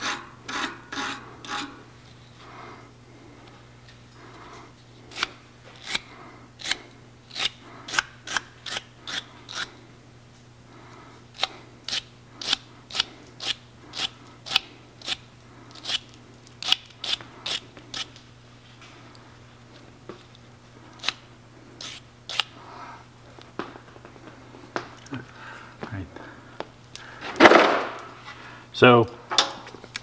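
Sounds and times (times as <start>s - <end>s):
wire brush scraping pipe fitting: 0.0s - 1.8s.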